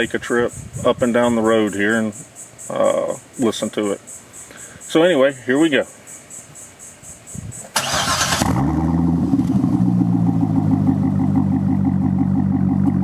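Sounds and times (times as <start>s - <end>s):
car starter cranking: 7.7s - 9.7s
car engine revving and idling: 7.8s - 13.0s.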